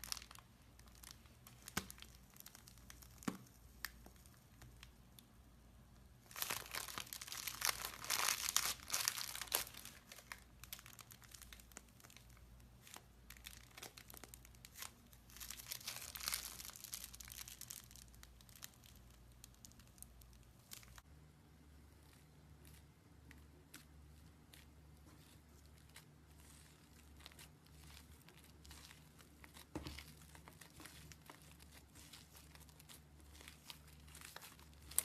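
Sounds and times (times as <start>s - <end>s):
crackling of tiny pops: 0.0s - 5.3s.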